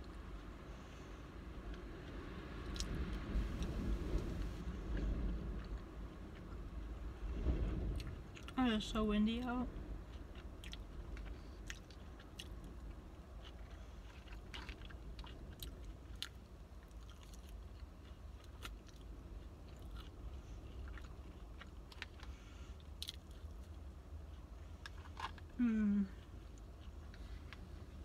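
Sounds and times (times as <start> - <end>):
low rumble: 0.0 - 28.0
chewing and biting: 10.1 - 25.6, 26.2 - 28.0.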